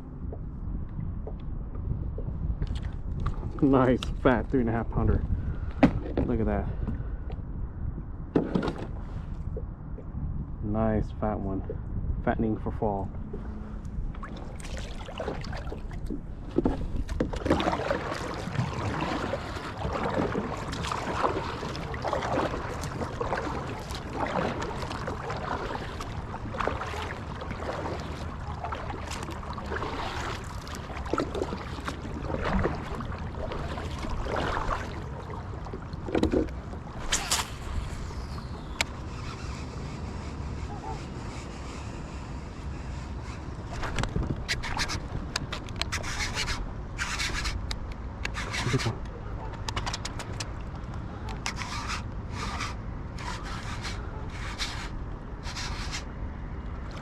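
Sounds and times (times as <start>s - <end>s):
water splashing around kayak: 0.0s - 7.4s, 12.8s - 41.2s, 41.9s - 57.0s
sharp click: 49.6s - 50.5s.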